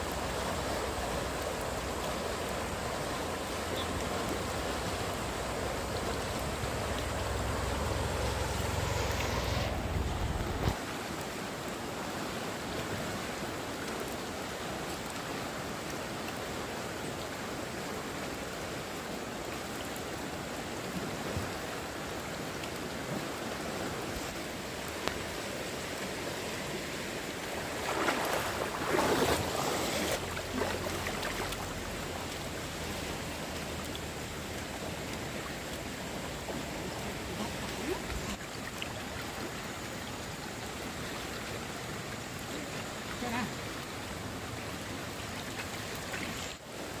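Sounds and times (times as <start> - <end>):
water disturbance: 0.0 - 10.9, 26.7 - 41.6
stream water rushing: 0.0 - 47.0.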